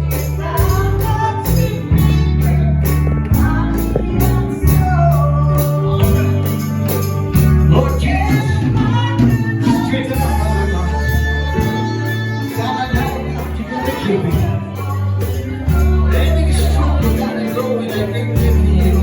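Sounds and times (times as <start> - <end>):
gospel singing: 0.0 - 19.0
low bass line: 0.0 - 19.0
tambourine beating: 0.0 - 19.0.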